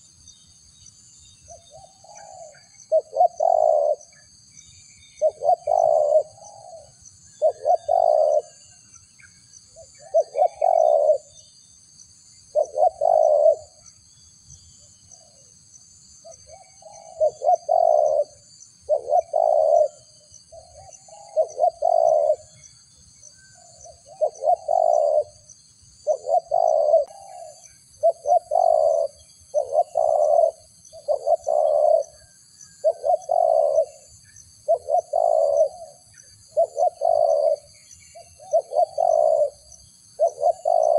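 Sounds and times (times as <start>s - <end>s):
dove cooing: 1.5s - 4.3s, 5.2s - 8.8s, 9.8s - 11.3s, 12.5s - 13.8s, 16.3s - 22.6s, 23.6s - 40.9s.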